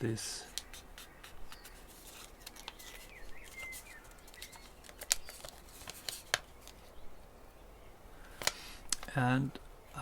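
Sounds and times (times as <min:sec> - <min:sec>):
paper crinkling and clicking: 0:00.5 - 0:07.0.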